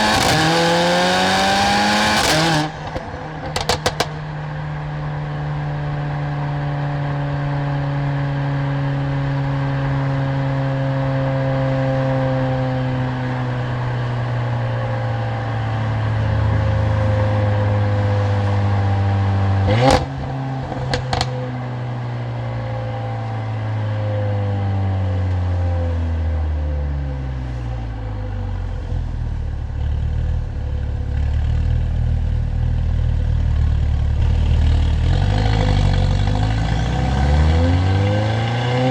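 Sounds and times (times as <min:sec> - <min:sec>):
exhaust cracks: 0:00.0 - 0:04.6, 0:19.7 - 0:21.4
car engine and exhaust: 0:00.0 - 0:38.9.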